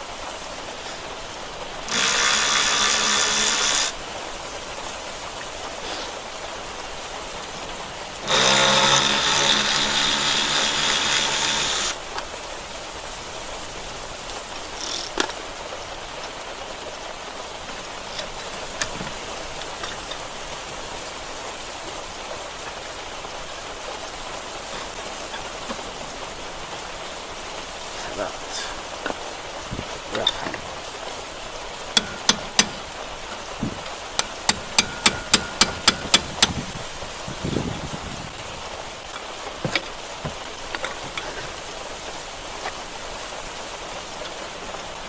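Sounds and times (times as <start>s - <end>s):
rain hissing: 0.0s - 45.0s
power tool running: 1.8s - 4.0s, 8.2s - 12.0s, 32.0s - 32.9s, 33.6s - 36.7s
small knocks: 32.0s - 36.8s, 39.1s - 41.6s.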